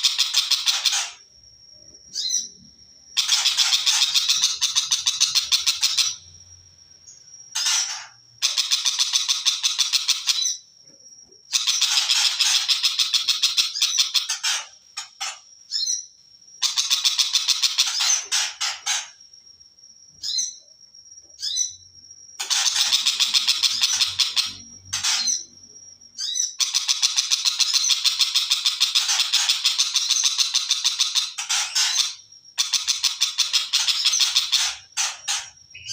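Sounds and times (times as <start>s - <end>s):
shrike chattering song: 0.0s - 1.2s, 3.2s - 6.3s, 22.4s - 25.6s, 26.2s - 35.9s
shrike harsh chattering song: 3.2s - 6.3s, 22.4s - 25.6s.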